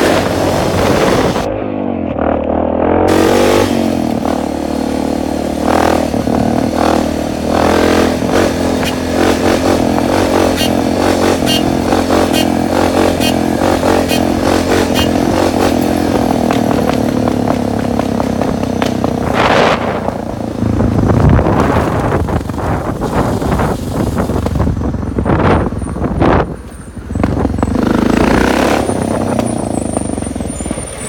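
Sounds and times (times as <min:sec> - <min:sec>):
dirt bike engine running: 0:00.0 - 0:30.8.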